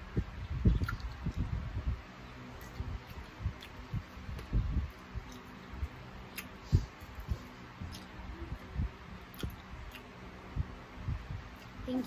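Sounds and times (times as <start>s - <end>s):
chewing with soft crunching: 0.6s - 1.6s, 2.3s - 10.3s.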